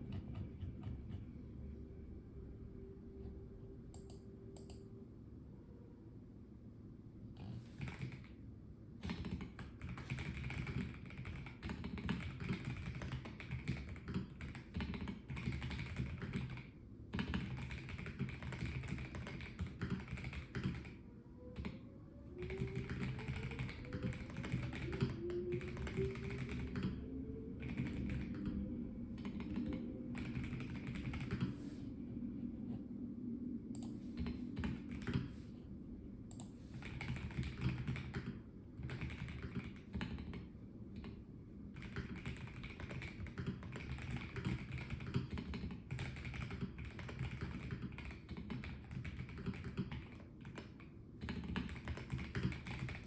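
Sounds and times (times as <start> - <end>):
mechanical keyboard typing: 7.8 - 8.3, 9.0 - 21.0, 22.4 - 27.0, 27.6 - 28.6, 29.2 - 31.5, 33.8 - 35.3, 36.3 - 41.1, 41.7 - 53.0.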